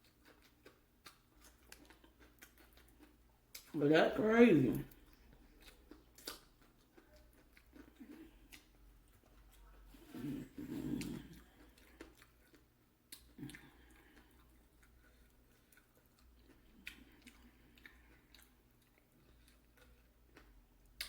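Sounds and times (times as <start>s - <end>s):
chewing fried chicken: 0.0s - 21.0s.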